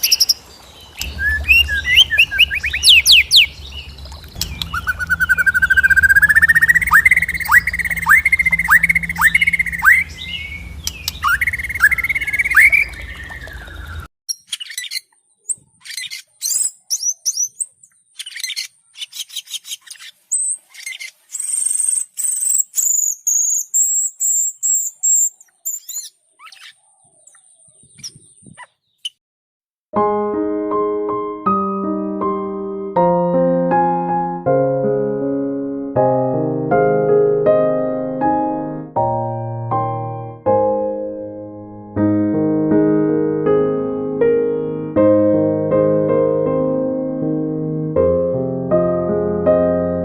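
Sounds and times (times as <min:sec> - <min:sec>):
bird whistling: 0:00.0 - 0:00.4, 0:01.0 - 0:27.4
bird chips and twitters: 0:00.0 - 0:29.2
low hum: 0:01.0 - 0:14.0
piano: 0:01.0 - 0:14.1, 0:29.9 - 0:50.0.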